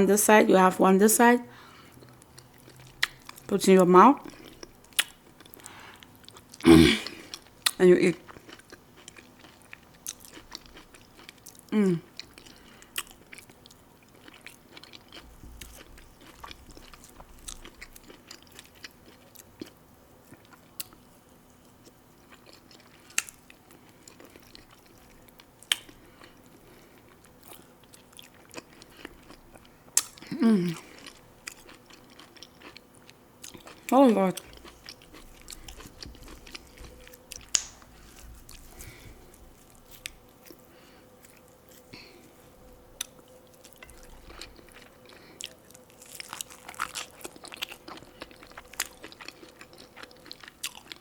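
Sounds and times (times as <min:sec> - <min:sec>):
person humming mmm: 0:11.7 - 0:12.2, 0:30.2 - 0:30.9
wet chewing mouth sounds: 0:22.2 - 0:42.3, 0:43.0 - 0:51.0.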